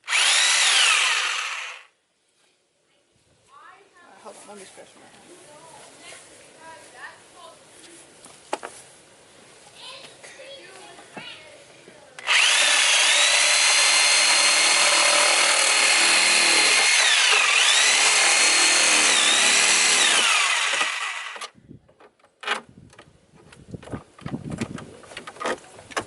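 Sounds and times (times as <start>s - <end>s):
power tool motor whining: 0.0s - 1.9s, 12.2s - 21.5s.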